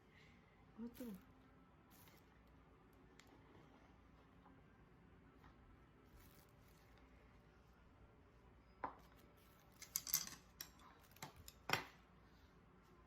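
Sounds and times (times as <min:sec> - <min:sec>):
tableware clicking and clattering: 0:09.8 - 0:11.9.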